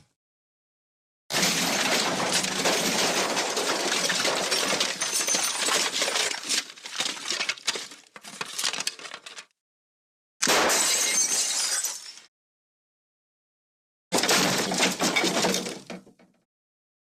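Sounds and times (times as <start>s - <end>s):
glass breaking and debris clattering: 1.3s - 7.6s, 10.4s - 12.3s, 14.2s - 15.9s.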